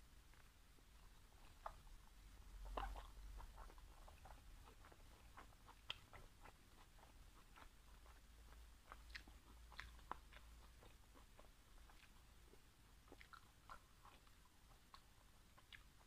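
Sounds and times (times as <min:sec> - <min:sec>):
chewing with wet mouth clicks: 0:00.3 - 0:16.0.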